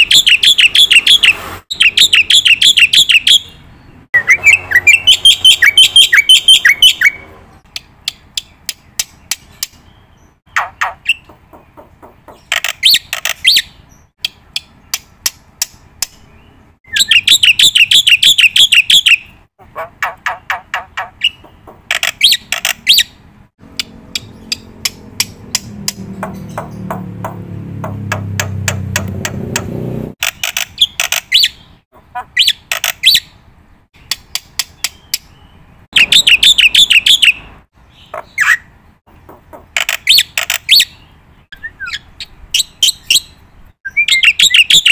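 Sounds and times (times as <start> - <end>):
bird chirping and trilling: 0.0 - 27.2, 30.2 - 33.4, 34.0 - 44.9.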